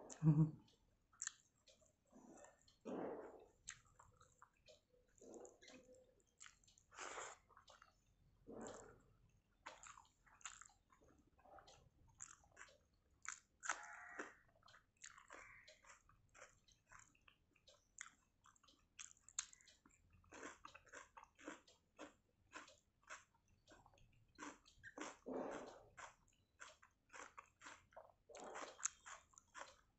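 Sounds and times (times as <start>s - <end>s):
chewing food: 0.0s - 29.9s
wet mouth clicks and lip smacks: 1.2s - 1.4s.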